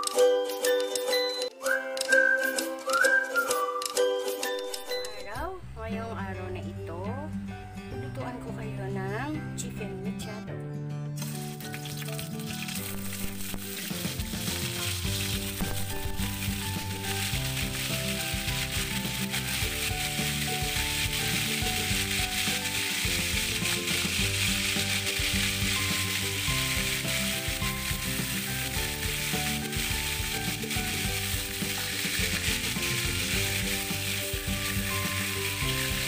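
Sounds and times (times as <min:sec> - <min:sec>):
background music with held notes: 0:00.0 - 0:36.0
chicken sizzling in oil: 0:11.2 - 0:36.0.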